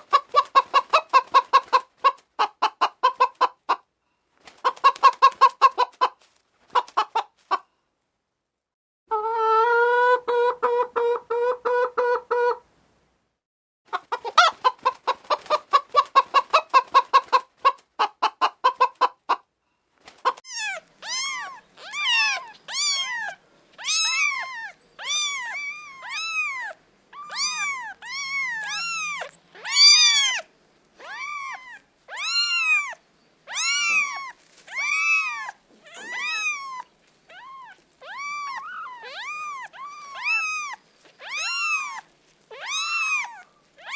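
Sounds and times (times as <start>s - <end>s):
rapid clucking calls: 20.3s - 43.9s
kittens mewing: 20.5s - 43.9s.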